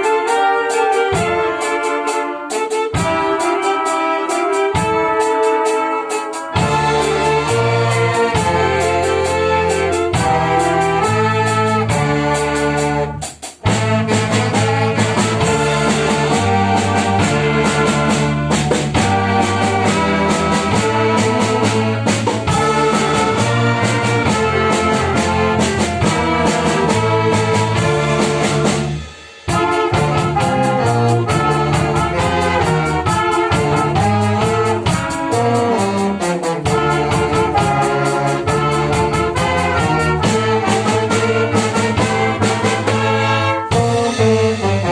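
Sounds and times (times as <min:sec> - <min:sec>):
brass band playing: 0:00.0 - 0:44.9.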